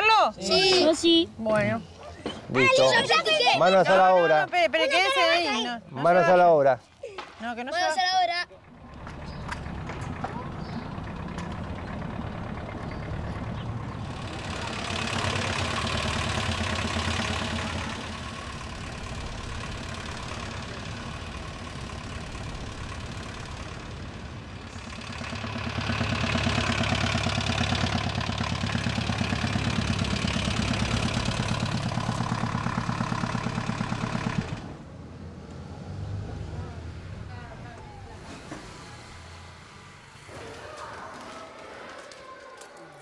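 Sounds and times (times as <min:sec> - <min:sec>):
car engine idling with pulsing beat: 0:10.1 - 0:34.6.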